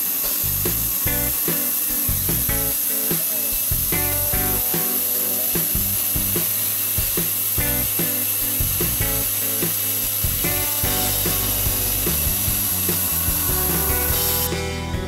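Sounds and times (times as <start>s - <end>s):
background music with beat: 0.2s - 15.0s
router spindle whining: 11.0s - 14.6s.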